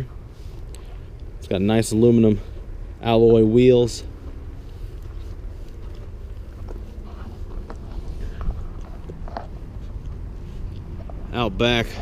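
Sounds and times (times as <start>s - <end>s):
low steady rumble: 0.0s - 12.0s
faint footsteps: 4.0s - 12.0s.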